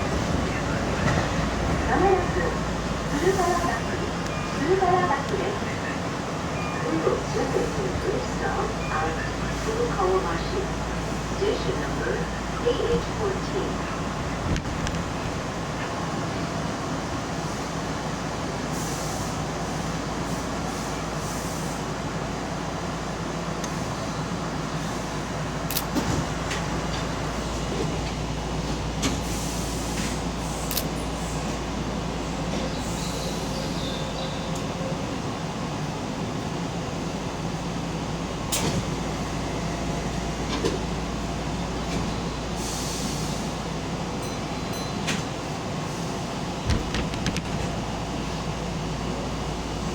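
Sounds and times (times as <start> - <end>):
train rumbling: 0.0 - 49.9.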